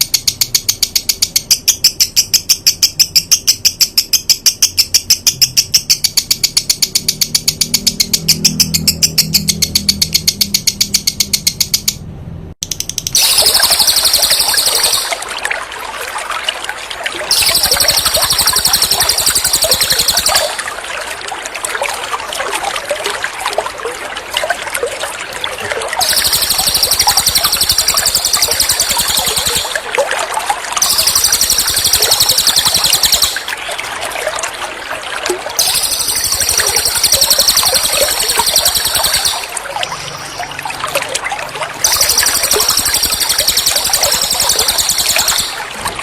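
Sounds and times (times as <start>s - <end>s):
trickling water: 0.0s - 11.8s, 12.6s - 46.0s
songbird high-pitched trill: 0.0s - 12.0s, 13.1s - 15.2s, 17.3s - 20.6s, 26.0s - 29.9s, 30.8s - 33.5s, 35.6s - 39.5s, 41.8s - 45.7s.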